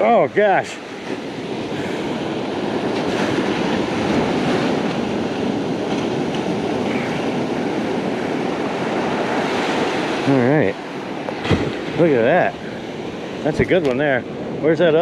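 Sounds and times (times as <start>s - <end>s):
surf breaking on beach: 0.0s - 15.0s.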